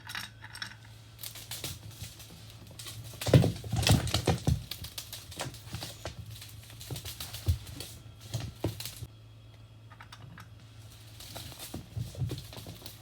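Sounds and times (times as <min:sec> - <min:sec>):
cat pawing at a bell: 0:01.2 - 0:09.1.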